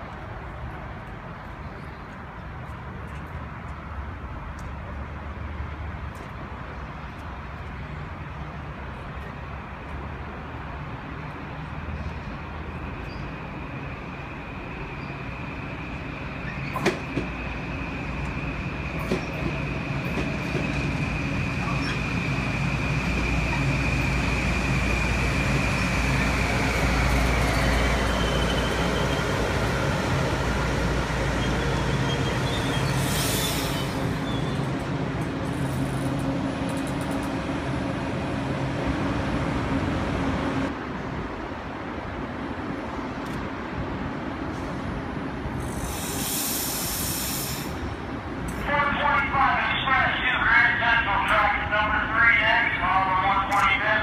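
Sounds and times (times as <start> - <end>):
electric train rumble: 12.4 - 41.0
brief hisses: 45.7 - 47.8.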